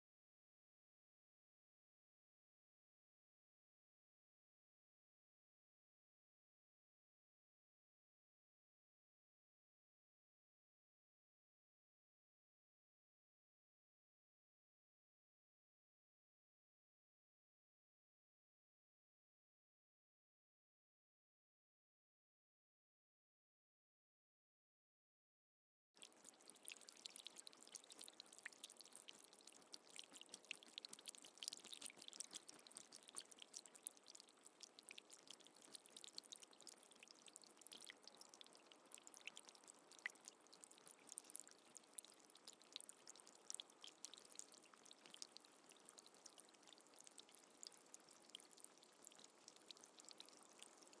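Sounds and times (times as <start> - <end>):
faint steady rain: 26.0 - 51.0.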